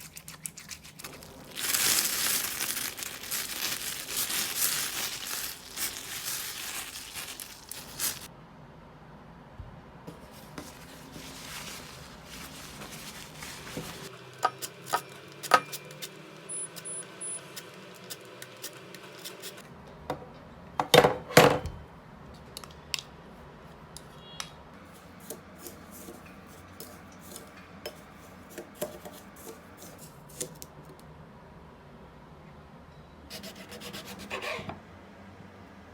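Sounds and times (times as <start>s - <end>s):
utensils and dishes clinking: 11.2s - 19.6s.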